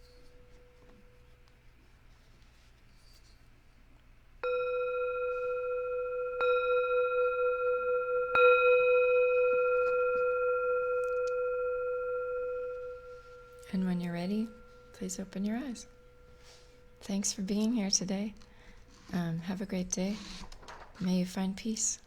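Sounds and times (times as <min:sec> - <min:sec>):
singing bowl ringing: 0:04.4 - 0:19.5.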